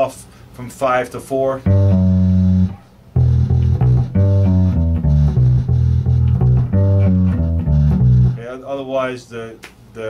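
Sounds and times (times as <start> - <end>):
electric bass guitar blues lick: 1.6 - 8.5.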